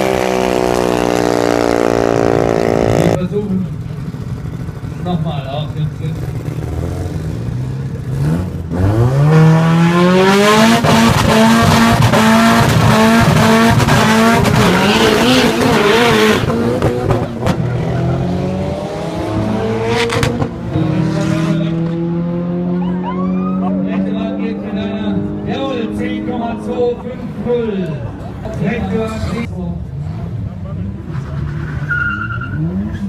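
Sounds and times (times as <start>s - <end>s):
car engine revving at high revs: 0.0s - 3.2s, 6.1s - 27.0s.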